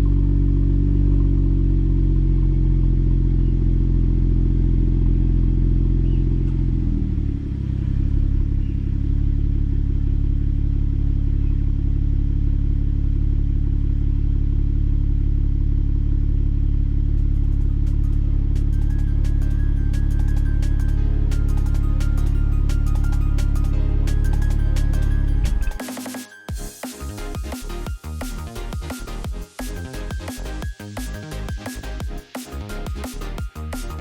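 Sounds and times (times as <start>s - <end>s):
car engine idling: 0.0s - 25.7s.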